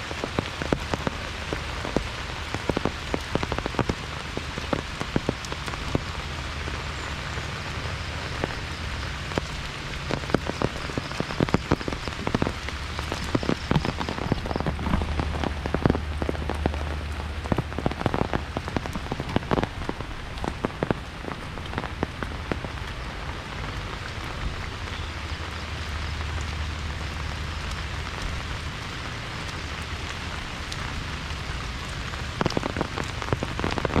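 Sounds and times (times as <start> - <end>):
heavy rain falling: 0.0 - 34.0
low wind rumble: 0.0 - 34.0.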